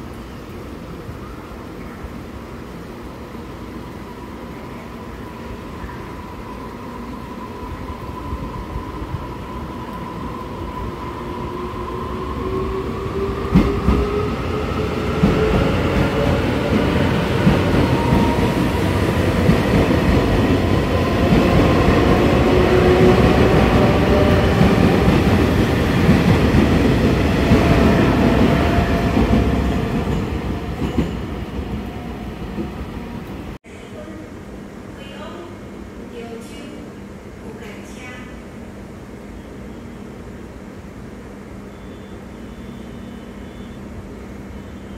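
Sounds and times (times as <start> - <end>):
train accelerating: 0.1 - 34.4.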